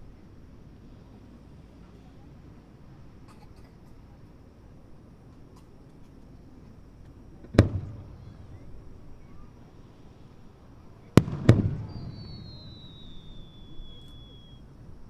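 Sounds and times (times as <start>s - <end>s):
firework shells bursting: 7.4s - 9.0s, 11.2s - 14.6s
rumbling echo: 11.2s - 13.2s
high whistle gliding down: 11.2s - 14.7s.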